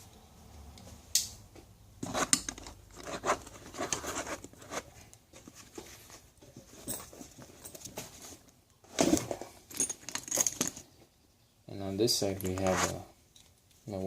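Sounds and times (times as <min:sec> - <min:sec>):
tools rustling in a tool bag: 0:02.0 - 0:10.9, 0:12.3 - 0:13.6.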